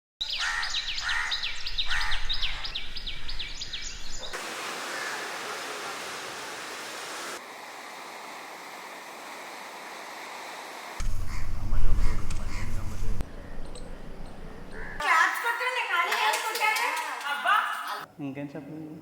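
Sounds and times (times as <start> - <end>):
small birds chirping: 0.2 - 4.4, 11.0 - 15.0.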